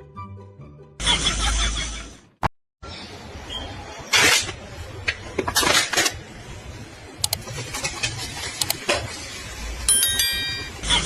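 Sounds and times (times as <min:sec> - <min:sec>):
metal objects clinking and knocking: 0:09.9 - 0:10.8.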